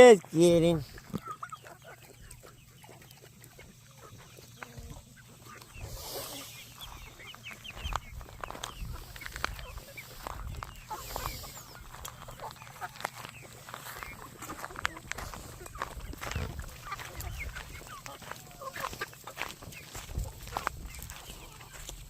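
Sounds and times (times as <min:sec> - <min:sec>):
poultry clucking: 0:00.0 - 0:22.0.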